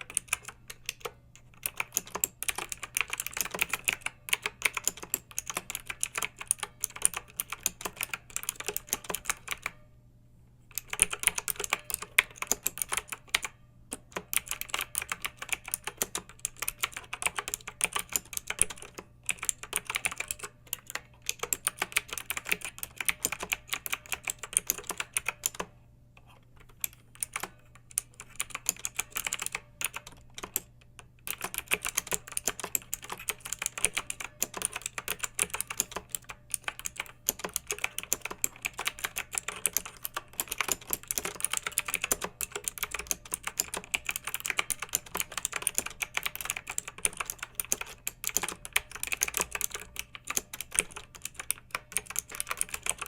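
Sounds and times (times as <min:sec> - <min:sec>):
mechanical keyboard typing: 0:00.0 - 0:09.8, 0:10.7 - 0:53.0.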